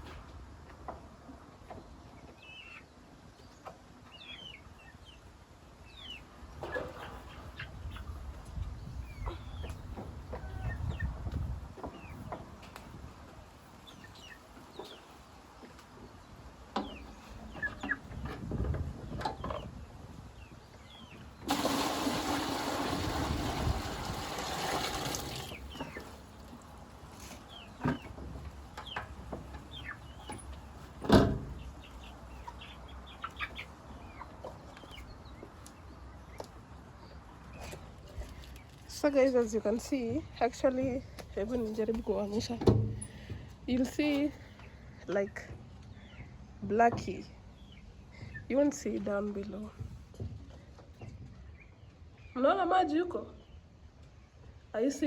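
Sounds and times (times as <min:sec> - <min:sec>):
chickens clucking: 0:00.0 - 0:22.4, 0:25.4 - 0:38.8
small birds chirping: 0:01.6 - 0:21.5, 0:25.4 - 0:54.9.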